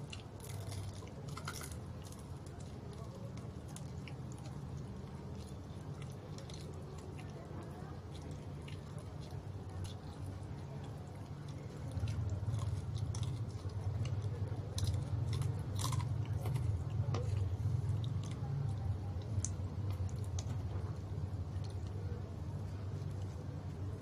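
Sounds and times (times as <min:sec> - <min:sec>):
person chewing crispy food: 0:00.0 - 0:24.0.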